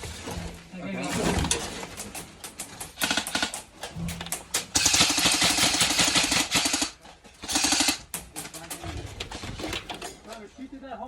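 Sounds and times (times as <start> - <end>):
airsoft rifle firing full auto: 3.0 - 3.7, 4.6 - 8.2.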